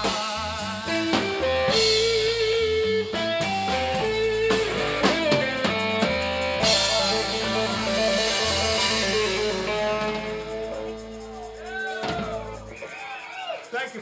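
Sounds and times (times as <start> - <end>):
blues-rock band playing: 0.0 - 12.8
electric guitar with bent notes: 0.0 - 13.0
cymbal crash ringing: 3.5 - 12.8.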